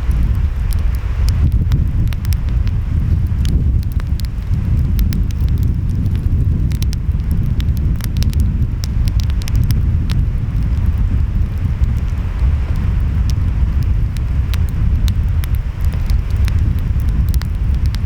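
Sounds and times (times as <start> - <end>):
wind: 0.0 - 18.0
wood fire crackling and popping: 0.0 - 18.0.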